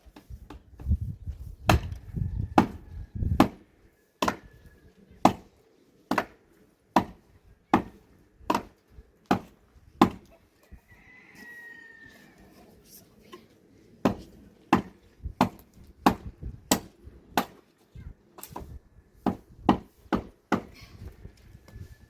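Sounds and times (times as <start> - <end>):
tool striking wood: 2.6 - 2.8, 4.2 - 4.5, 7.0 - 7.9, 9.3 - 10.3, 14.0 - 17.6, 18.5 - 20.8.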